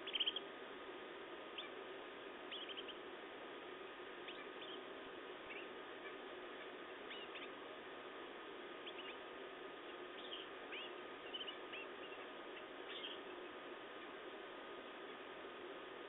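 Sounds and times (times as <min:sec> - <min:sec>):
canaries chirping: 0:00.0 - 0:00.5, 0:01.5 - 0:01.8, 0:02.5 - 0:03.1, 0:04.2 - 0:07.7, 0:08.8 - 0:14.1
steady hiss: 0:00.0 - 0:16.0.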